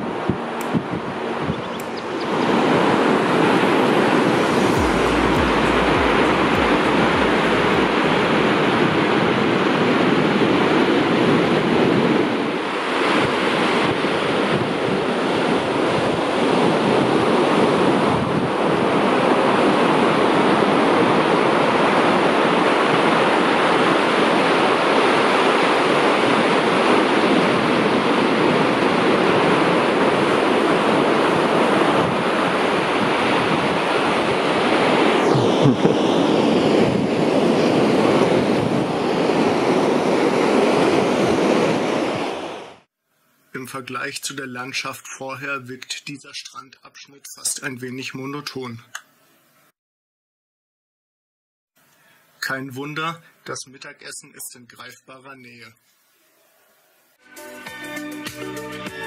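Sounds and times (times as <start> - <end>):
surf breaking on beach: 0.0 - 42.7.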